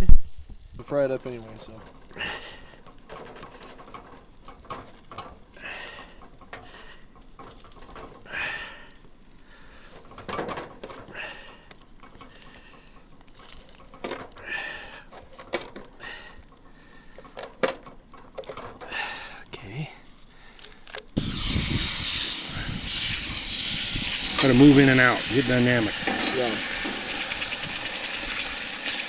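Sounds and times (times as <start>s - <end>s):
utensils clicking and clinking: 20.1s - 29.0s.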